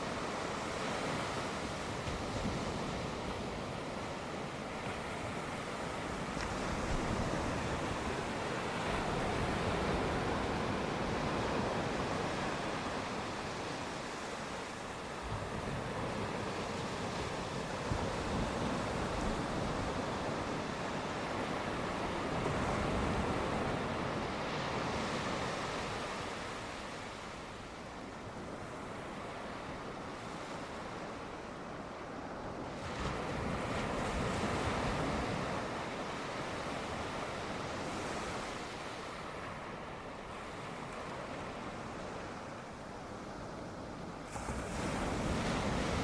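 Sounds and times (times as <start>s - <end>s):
sea waves washing onto shore: 0.0s - 46.0s.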